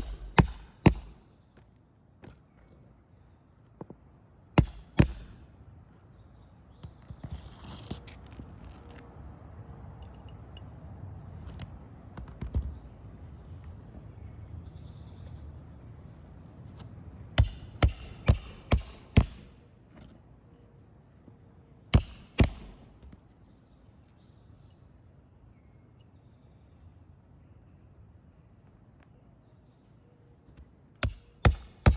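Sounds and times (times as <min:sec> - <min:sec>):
hammer striking nails into shingles: 0:00.0 - 0:01.2, 0:04.6 - 0:05.5, 0:17.4 - 0:19.6, 0:21.9 - 0:23.2, 0:31.0 - 0:31.9.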